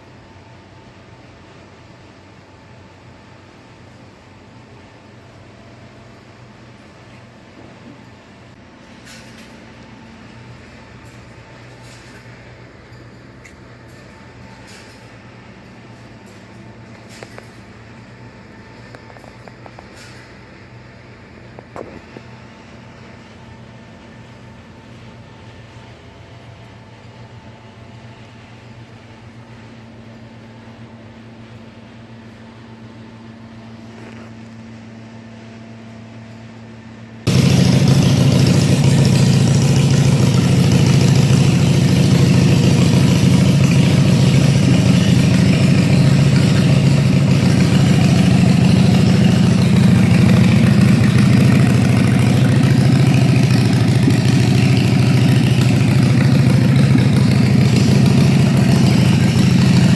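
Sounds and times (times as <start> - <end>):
motorcycle engine idling: 37.3 - 59.9.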